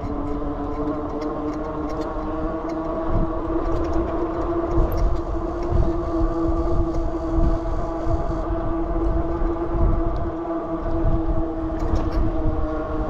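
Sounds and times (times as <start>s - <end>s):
low gusty rumble: 0.0s - 13.0s
mechanical hum: 0.0s - 13.0s.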